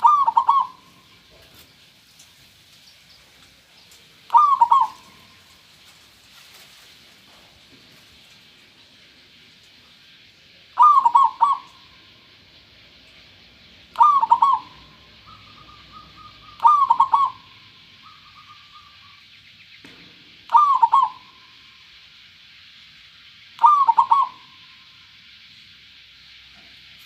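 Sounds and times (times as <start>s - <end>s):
dove cooing: 0.0s - 1.6s, 4.2s - 5.6s, 10.8s - 12.0s, 13.9s - 19.0s, 20.5s - 21.4s, 23.6s - 24.7s.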